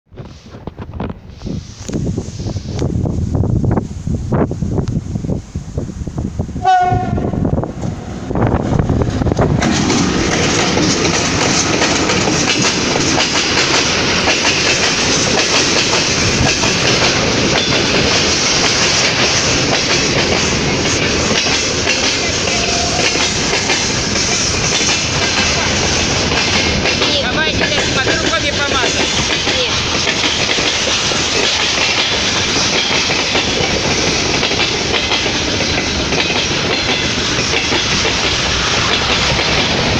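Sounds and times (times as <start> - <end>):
train wheels rattling on rail: 0.1 - 39.9
locomotive horn blast: 6.6 - 7.5, 22.2 - 23.5.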